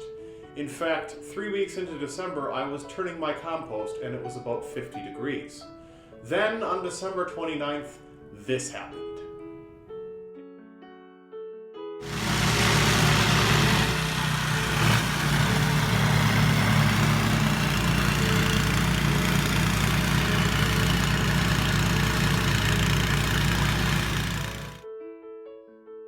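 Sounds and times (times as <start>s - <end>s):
engine running loudly: 12.0s - 24.8s.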